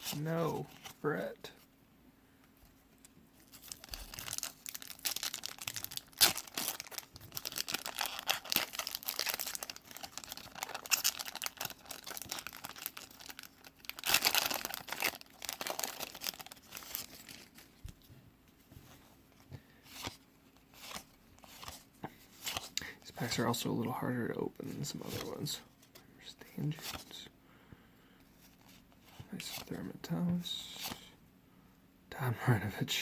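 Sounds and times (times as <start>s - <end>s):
wax wrapper tearing and crinkling: 3.5s - 17.7s.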